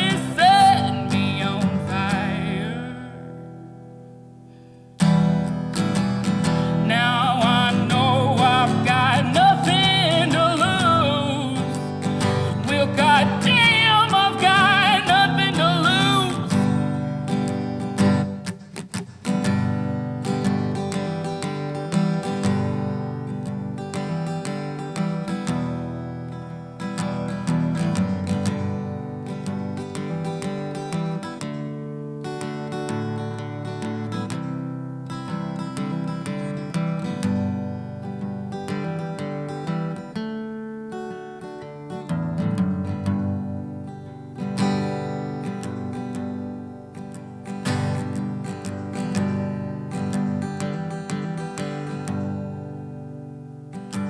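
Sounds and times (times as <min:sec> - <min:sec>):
acoustic guitar strumming chords: 0:00.0 - 0:54.0.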